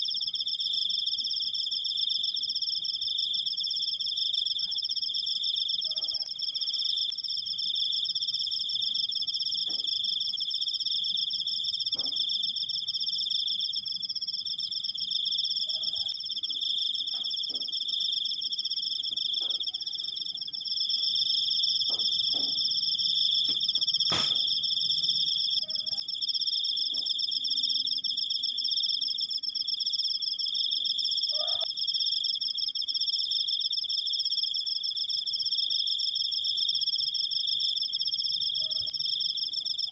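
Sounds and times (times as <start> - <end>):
cricket trilling: 0.0 - 39.9
sharp click: 23.5 - 24.4.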